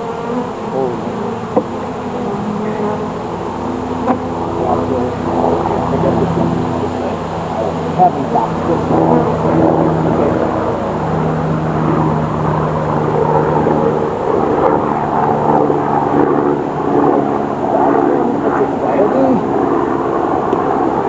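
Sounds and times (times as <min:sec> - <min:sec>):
honeybees buzzing: 0:00.0 - 0:21.0.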